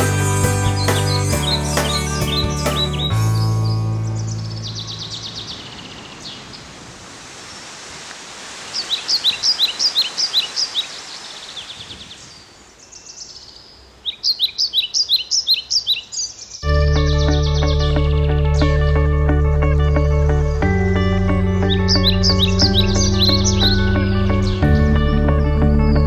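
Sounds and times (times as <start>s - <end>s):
music: 0.0s - 4.9s, 16.6s - 26.0s
songbird chirping: 0.0s - 7.8s, 8.6s - 26.0s
rushing stream hiss: 3.6s - 14.1s.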